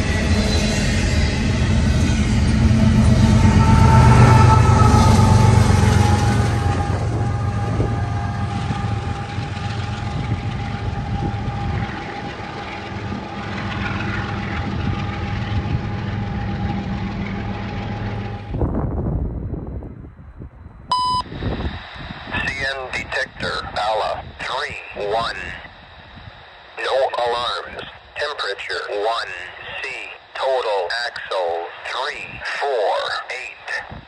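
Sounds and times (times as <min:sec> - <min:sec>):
freight train rolling past: 0:00.0 - 0:20.9
high whine from train wheels: 0:00.0 - 0:34.0.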